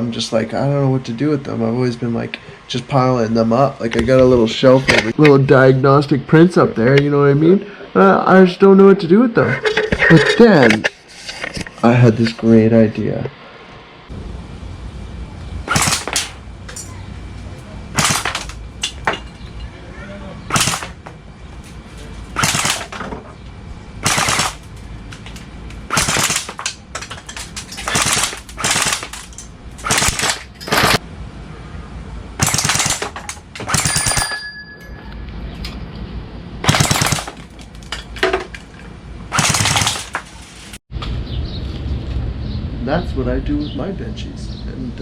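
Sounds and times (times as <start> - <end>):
airsoft rifle full-auto bursts: 15.7 - 16.2, 20.5 - 20.9, 22.4 - 22.9, 24.0 - 24.6, 25.9 - 26.6, 27.8 - 29.2, 29.8 - 31.0, 32.4 - 34.2, 36.6 - 37.4, 39.3 - 40.2.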